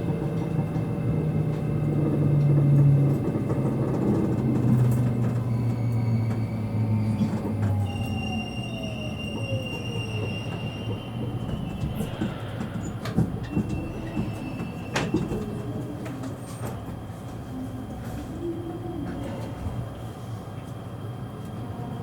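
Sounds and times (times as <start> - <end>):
steady train rumble: 0.0 - 22.0
wheel squeal: 5.4 - 15.6.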